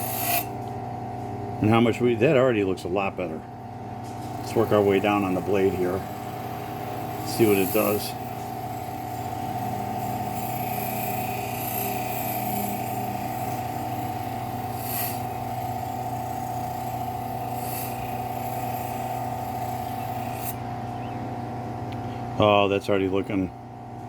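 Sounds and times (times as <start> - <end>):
blade hissing on grinder wheel: 0.0 - 0.6, 4.3 - 20.6
bench grinder running: 0.0 - 22.4.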